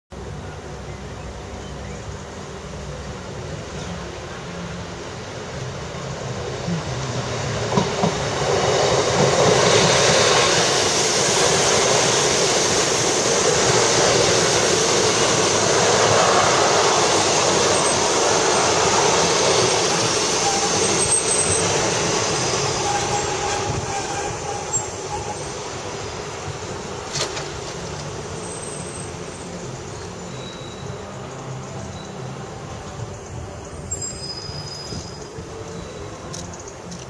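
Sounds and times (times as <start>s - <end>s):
diesel train passing: 0.1s - 37.0s
train wheel clicks: 36.3s - 37.0s.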